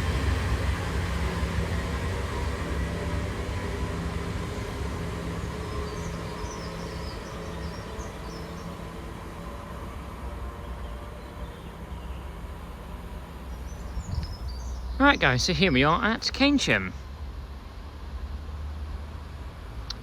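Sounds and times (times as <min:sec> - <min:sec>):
train engine humming: 0:00.0 - 0:20.0.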